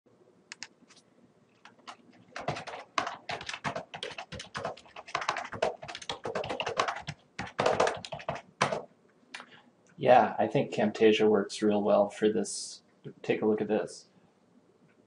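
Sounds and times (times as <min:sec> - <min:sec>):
typing on a keyboard: 0:01.6 - 0:08.9.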